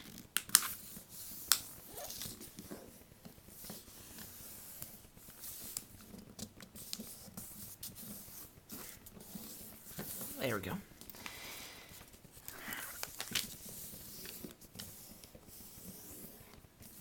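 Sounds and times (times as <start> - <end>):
paper folding and creasing: 12.4 - 17.0.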